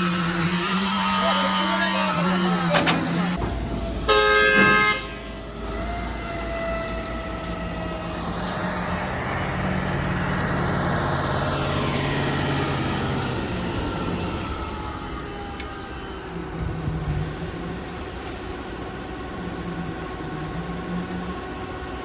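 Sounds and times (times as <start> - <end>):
heavy vehicle engine running: 0.0 - 22.0
vehicle horn: 4.0 - 5.4.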